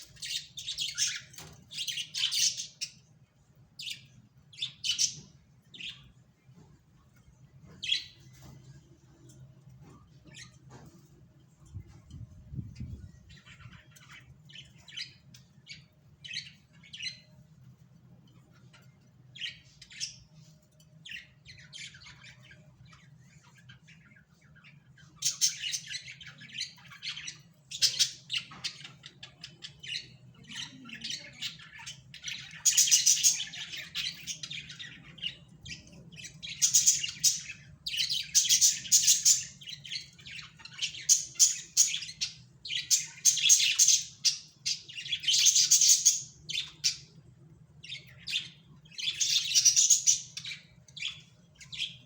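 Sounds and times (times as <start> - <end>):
parrots chirping and squawking: 0.0 - 3.1, 21.0 - 47.2, 47.8 - 52.0.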